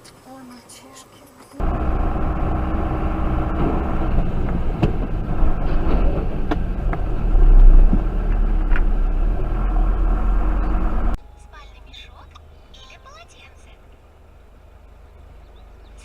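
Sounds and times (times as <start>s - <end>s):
car engine and road noise: 0.0s - 16.0s
low rumble: 1.6s - 11.2s.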